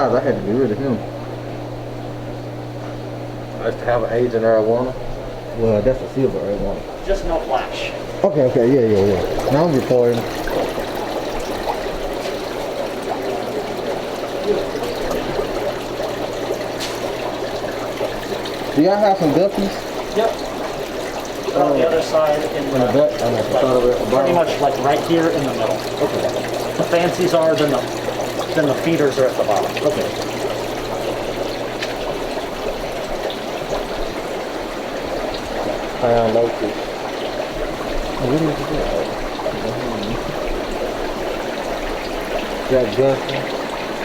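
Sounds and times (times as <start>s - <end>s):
aquarium filter water trickling: 0.0s - 44.0s
low pump hum: 0.0s - 44.0s.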